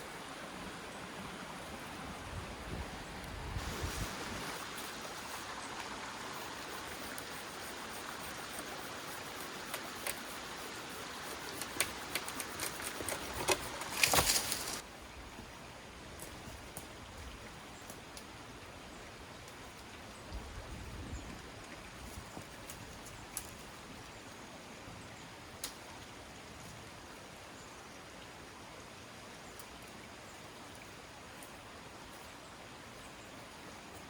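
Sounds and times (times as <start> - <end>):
loud rustle: 7.7 - 14.8.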